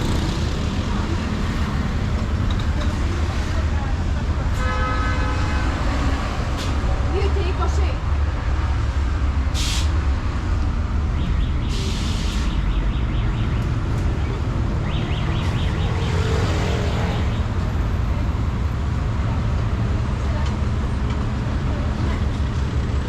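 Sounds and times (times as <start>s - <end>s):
heavy vehicle engines rumbling: 0.0s - 23.0s
air brake hisses: 9.6s - 10.0s, 11.7s - 12.5s.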